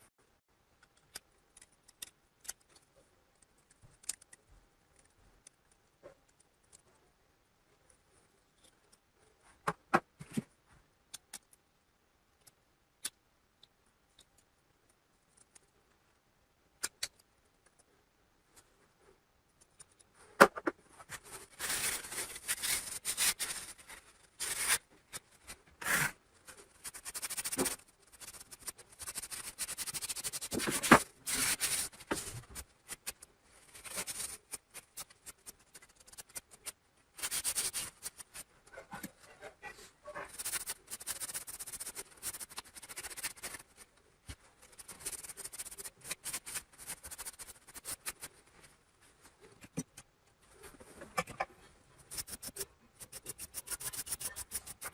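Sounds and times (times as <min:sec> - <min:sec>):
small clicks and taps: 0:00.7 - 0:06.9
scraping and rubbing strokes: 0:19.8 - 0:49.8, 0:50.5 - 0:54.9.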